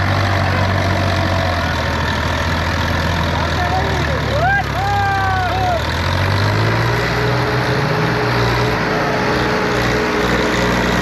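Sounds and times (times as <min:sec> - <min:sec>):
diesel tractor engines humming: 0:00.0 - 0:11.0.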